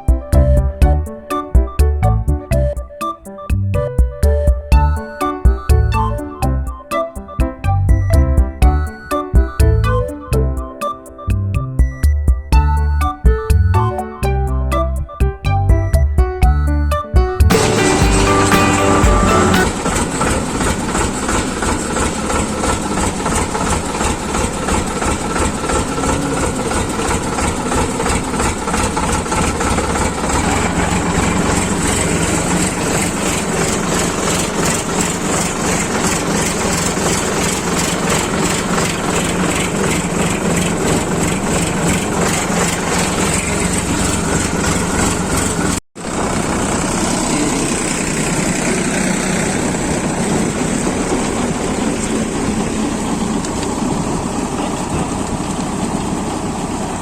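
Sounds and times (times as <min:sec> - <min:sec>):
tractor engine running: 0:17.2 - 0:57.0.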